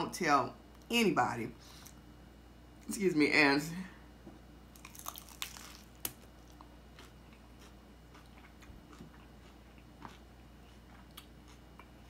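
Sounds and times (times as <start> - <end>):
crunching hard taco shell: 4.8 - 7.1
quiet chewing: 4.8 - 12.0.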